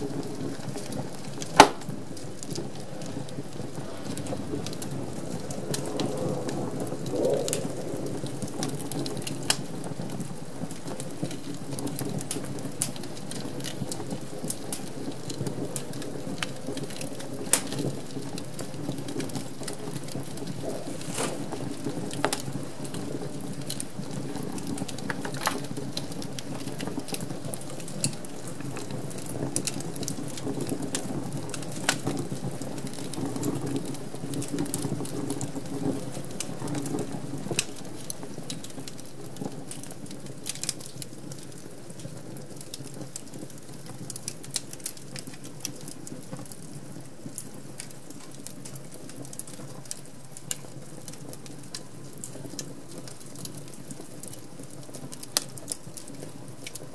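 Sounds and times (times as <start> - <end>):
low rumble of flames: 0.0 - 56.9
wood fire crackling: 0.0 - 56.9
sharp pops and snaps: 1.4 - 2.0, 4.2 - 9.7, 17.5 - 17.8.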